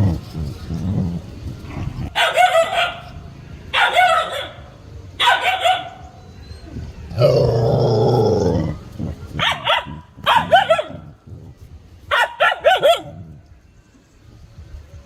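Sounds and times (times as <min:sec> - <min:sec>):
dog growling: 0:00.0 - 0:02.2, 0:07.1 - 0:11.7
dogs barking: 0:00.0 - 0:06.3, 0:08.8 - 0:13.4.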